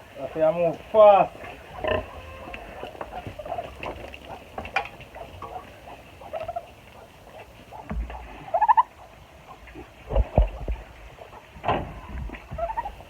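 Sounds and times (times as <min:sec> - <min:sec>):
piglets squeaking and grunting: 0:01.4 - 0:08.9.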